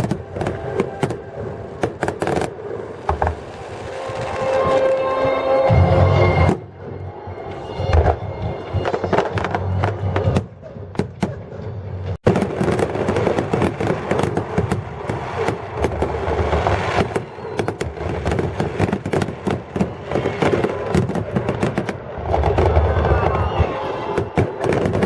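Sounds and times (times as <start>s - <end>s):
fireworks pops and bangs: 0.0s - 5.4s, 12.2s - 25.0s.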